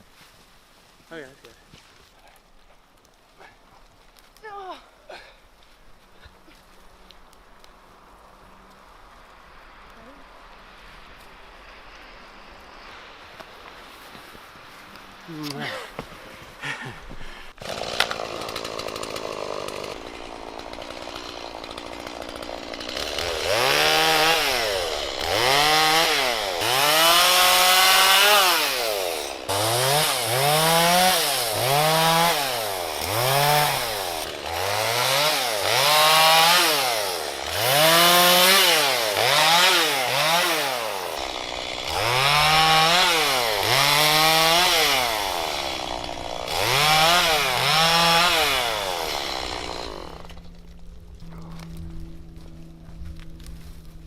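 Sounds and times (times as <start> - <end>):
chainsaw cutting wood: 17.5 - 52.4.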